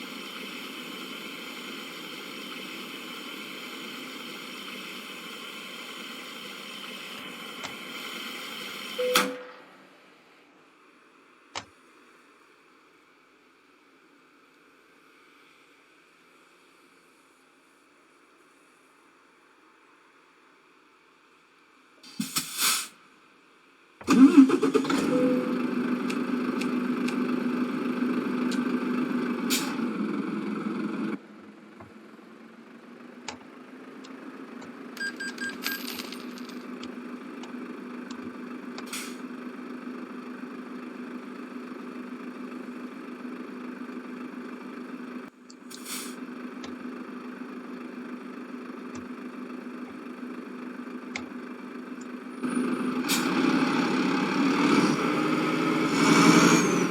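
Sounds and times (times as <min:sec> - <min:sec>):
vehicle engine starting and running: 0:00.0 - 0:09.8, 0:24.0 - 0:56.9.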